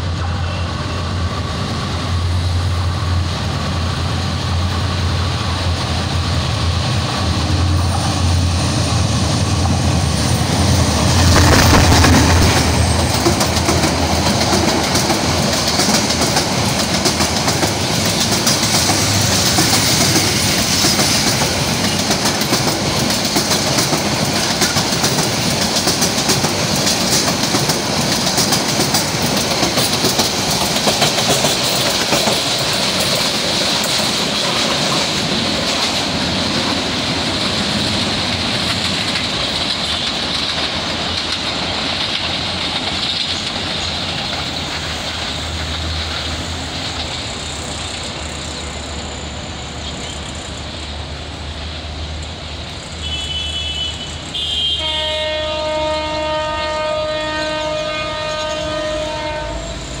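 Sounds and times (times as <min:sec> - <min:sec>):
train coaches rolling past: 0:00.0 - 1:00.0
train horn blasts: 0:53.0 - 1:00.0.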